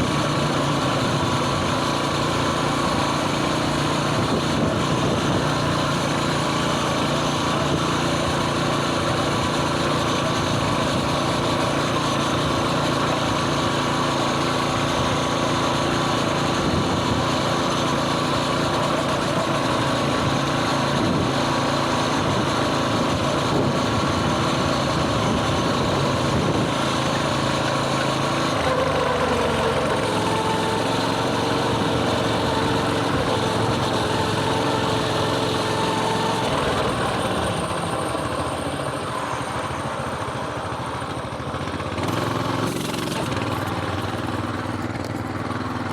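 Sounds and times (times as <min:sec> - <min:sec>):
mini bike engine running: 0:00.0 - 0:45.9.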